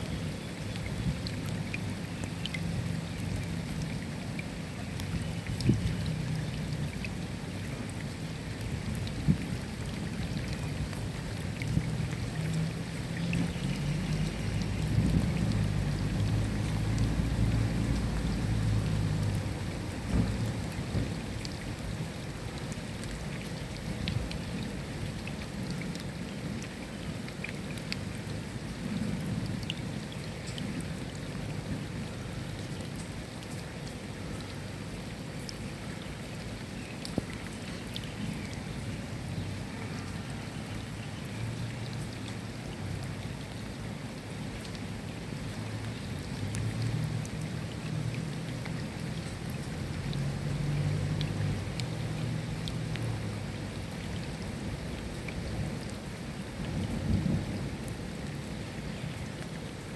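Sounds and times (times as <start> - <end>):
steady rain: 0.0 - 59.9
low rumble of thunder: 14.8 - 19.4, 20.0 - 21.4, 56.6 - 58.1.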